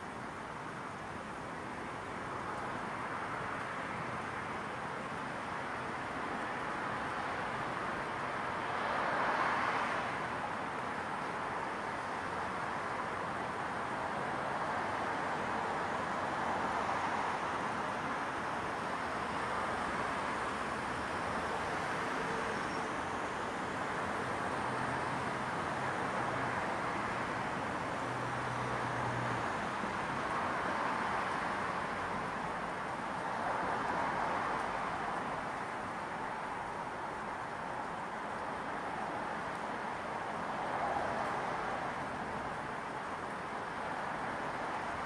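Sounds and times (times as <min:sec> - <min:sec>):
distant traffic hiss: 0:00.0 - 0:45.0.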